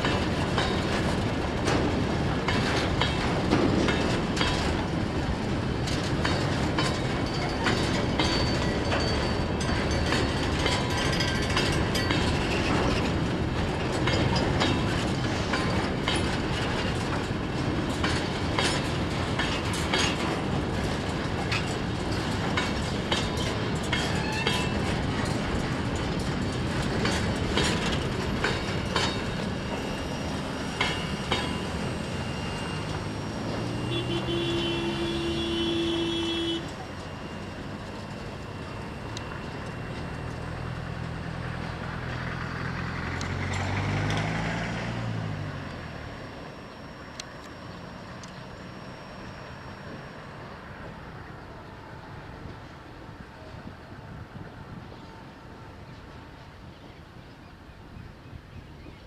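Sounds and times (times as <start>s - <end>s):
train wheels clattering over rail joints: 0.0s - 53.8s
faint high wheel squeals: 23.3s - 25.1s, 27.7s - 42.7s, 45.0s - 52.5s.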